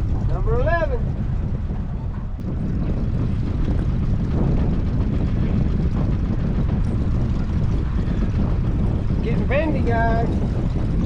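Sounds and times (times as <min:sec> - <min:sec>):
boat motor rumbling: 0:00.0 - 0:11.0
water noise: 0:00.0 - 0:11.0
wind noise: 0:00.0 - 0:11.0.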